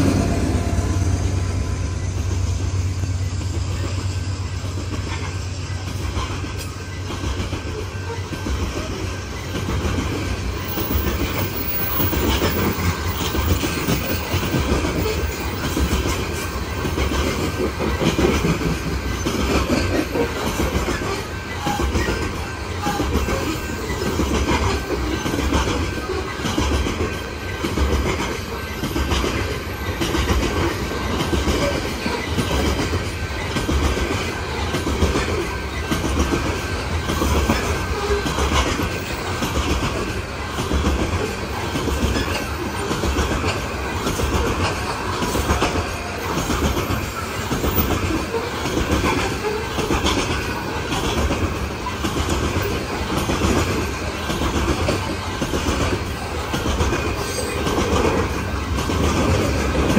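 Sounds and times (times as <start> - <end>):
freight train wheels clattering: 0.0 - 59.9.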